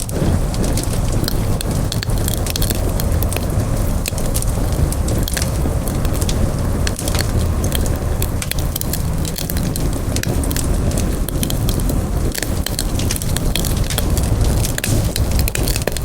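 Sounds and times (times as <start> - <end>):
burning wood popping: 0.0 - 16.0
roar of flames: 0.0 - 16.0.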